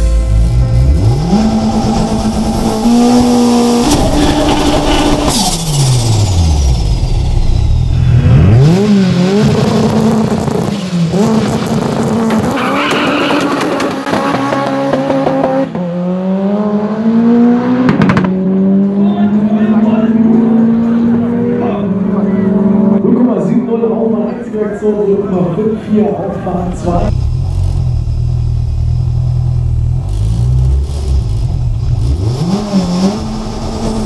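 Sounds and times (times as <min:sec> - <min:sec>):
turbocharged engine revving hard: 0:00.8 - 0:07.2, 0:07.9 - 0:23.4, 0:30.0 - 0:34.0.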